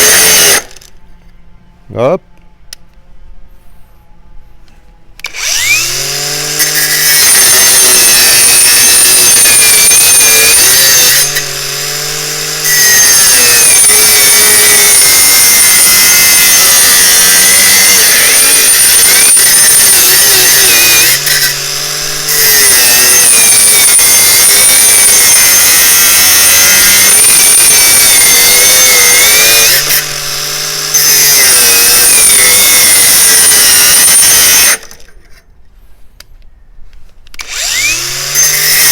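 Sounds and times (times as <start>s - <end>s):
angle grinder cutting steel: 0.0s - 0.9s, 5.2s - 35.3s, 37.4s - 38.9s
grinder motor whining: 0.0s - 0.9s, 5.2s - 35.2s, 37.3s - 38.9s.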